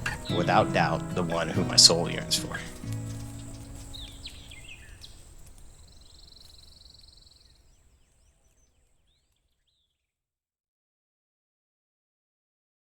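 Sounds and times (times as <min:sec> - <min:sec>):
steady trill: 0:00.0 - 0:03.8
faint outdoor hiss: 0:00.0 - 0:10.2
small birds chirping: 0:00.0 - 0:10.2.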